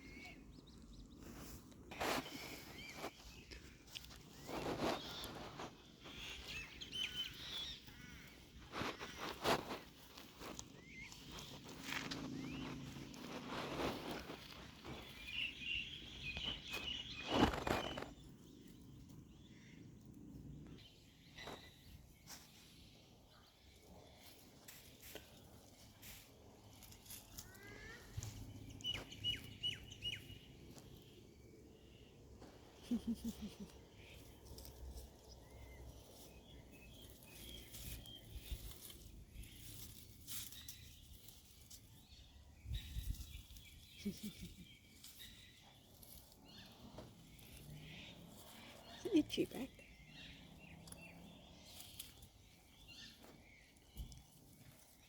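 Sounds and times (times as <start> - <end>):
faint bird chirps: 0.0 - 12.8
rustling outdoors: 0.0 - 55.0
footsteps: 7.2 - 15.2.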